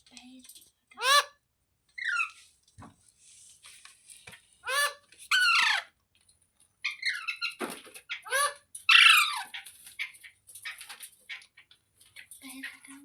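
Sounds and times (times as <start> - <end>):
parrot chattering: 1.0 - 1.3, 4.6 - 5.9, 6.9 - 9.6
parrot screeching: 1.0 - 1.3, 2.0 - 2.4, 4.6 - 5.9, 6.9 - 9.6.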